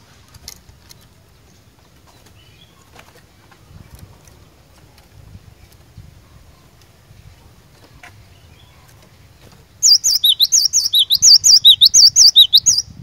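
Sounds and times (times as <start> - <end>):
bird singing high sweeping notes: 9.8 - 13.0.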